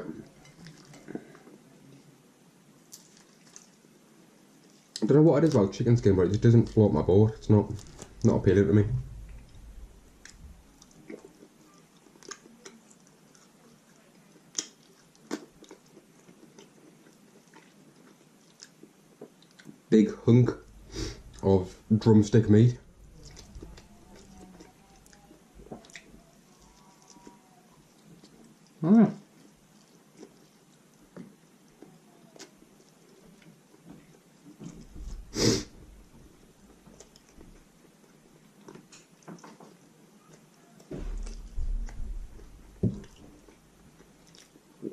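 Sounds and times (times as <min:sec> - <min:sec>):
chewing and wet mouth sounds: 0:00.0 - 0:02.0, 0:02.9 - 0:08.4, 0:09.0 - 0:19.9, 0:22.8 - 0:44.9
breathy noise: 0:20.5 - 0:21.9, 0:34.9 - 0:36.2.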